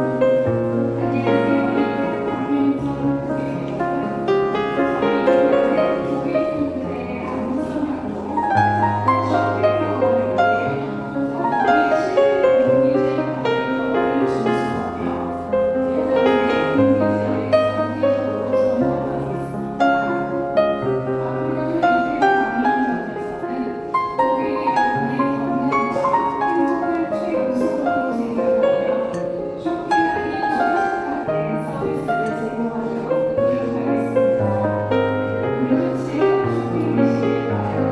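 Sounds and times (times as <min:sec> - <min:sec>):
gentle piano instrumental: 0:00.0 - 0:37.9.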